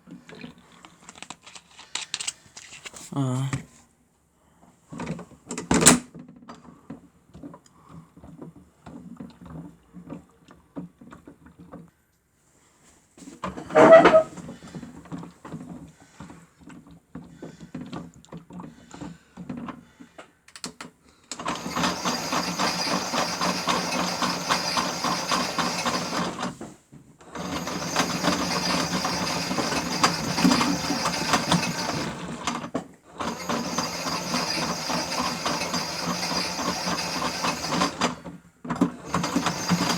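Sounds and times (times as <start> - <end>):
toy washing machine motor whirring: 13.5 - 14.8, 21.3 - 39.9.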